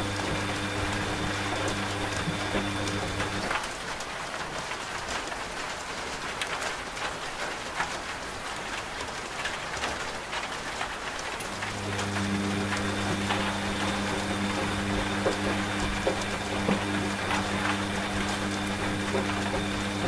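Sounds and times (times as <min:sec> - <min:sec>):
washing machine humming: 0:00.0 - 0:03.9, 0:11.2 - 0:20.0
steady rain: 0:00.0 - 0:20.0.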